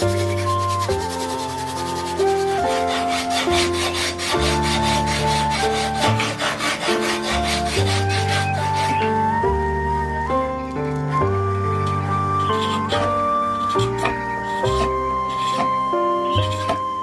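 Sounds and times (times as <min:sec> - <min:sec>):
bamboo being rasped: 0:00.0 - 0:09.1, 0:12.3 - 0:17.0
background music with bass: 0:00.0 - 0:17.0.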